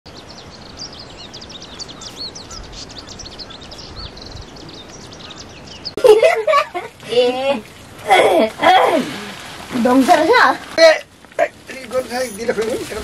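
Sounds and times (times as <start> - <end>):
small birds chirping: 0.1 - 6.1
faint steady hiss: 6.0 - 13.0.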